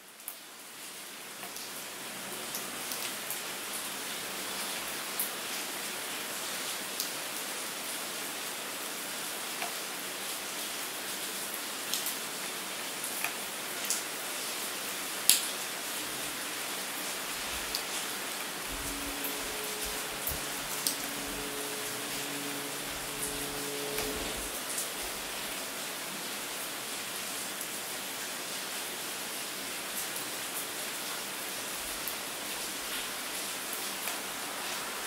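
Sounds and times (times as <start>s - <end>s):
rain hissing: 15.6s - 28.2s, 31.7s - 35.0s.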